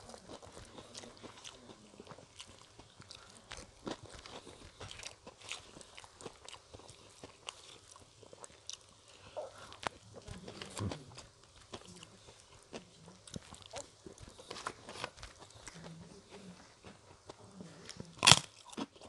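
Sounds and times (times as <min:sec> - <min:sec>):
crunchy chewing: 0:00.0 - 0:19.0.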